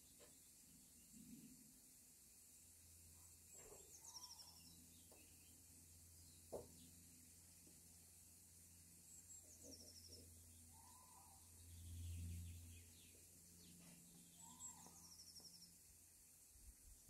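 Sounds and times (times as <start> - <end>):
low steady hum: 0.0 - 17.0
small bird singing: 3.0 - 17.0.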